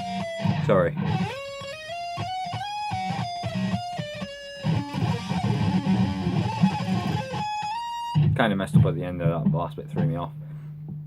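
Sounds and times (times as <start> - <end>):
electric guitar lead solo: 0.0 - 8.4.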